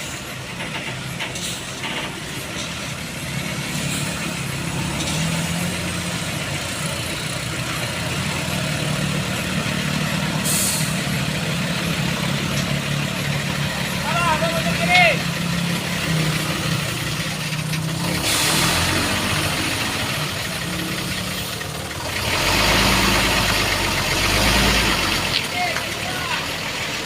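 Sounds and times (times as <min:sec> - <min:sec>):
heavy truck engine running: 0:00.0 - 0:27.0
air hissing: 0:10.4 - 0:11.2.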